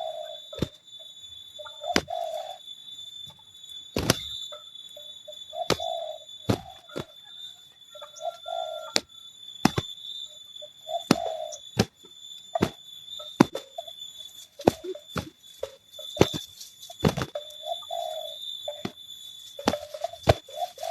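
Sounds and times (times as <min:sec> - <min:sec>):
doves cooing: 0:00.0 - 0:20.9
sharp slaps of birds fighting: 0:00.5 - 0:00.8, 0:01.8 - 0:02.5, 0:04.0 - 0:04.4, 0:05.6 - 0:07.2, 0:08.9 - 0:10.0, 0:10.9 - 0:12.0, 0:12.6 - 0:12.8, 0:13.4 - 0:13.9, 0:14.6 - 0:18.1, 0:18.7 - 0:20.9.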